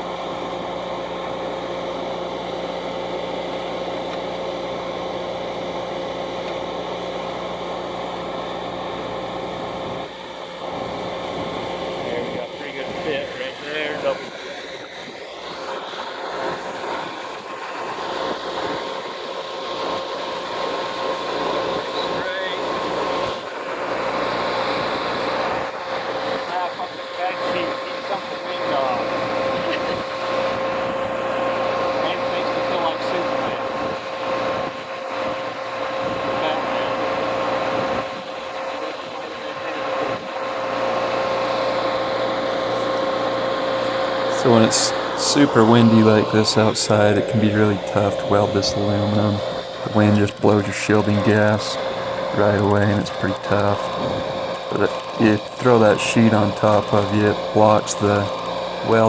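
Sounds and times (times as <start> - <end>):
steady machine hum: 0.0 - 59.0
wind noise on microphone: 36.0 - 36.4, 53.9 - 54.5
engine humming: 40.4 - 59.0.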